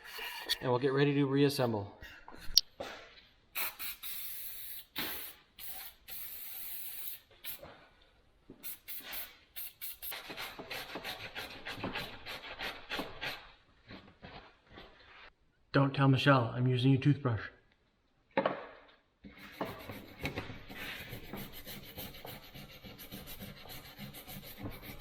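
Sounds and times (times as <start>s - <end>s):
aerosol spray can hissing: 3.6s - 7.7s, 8.6s - 10.3s
brush scrubbing metal: 19.4s - 25.0s.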